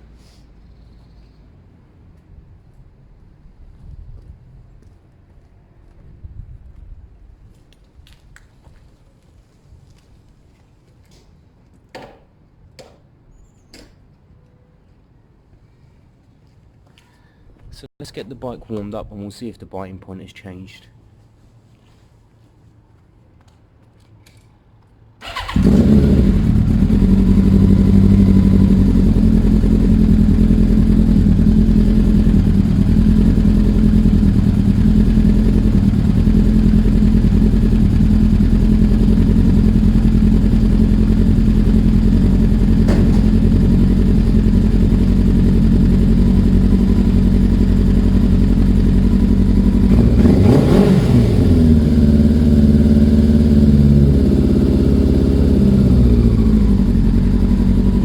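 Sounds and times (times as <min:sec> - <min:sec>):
motorcycle engine idling: 0:25.2 - 0:58.0.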